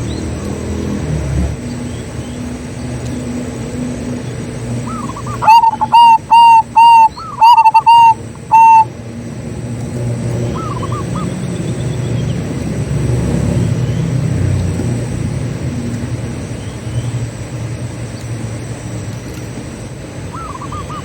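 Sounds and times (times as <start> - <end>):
dove cooing: 3.7 - 8.9, 10.3 - 11.6, 20.3 - 21.0
faint bird warbling: 4.8 - 8.9, 10.5 - 11.8, 20.3 - 21.0.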